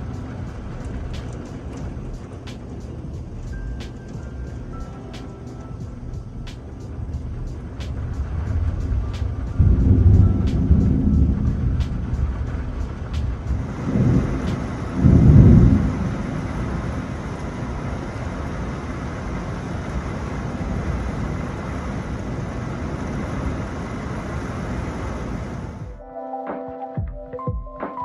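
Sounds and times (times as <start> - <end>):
rain hiss: 0.0 - 25.9
thunder rumbling: 0.0 - 26.0.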